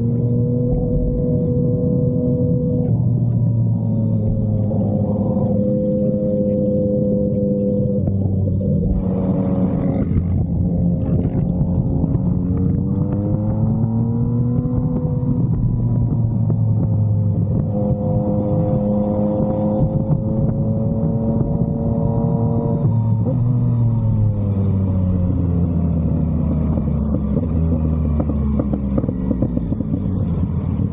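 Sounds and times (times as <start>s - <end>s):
motorcycle engine: 0.0s - 30.9s.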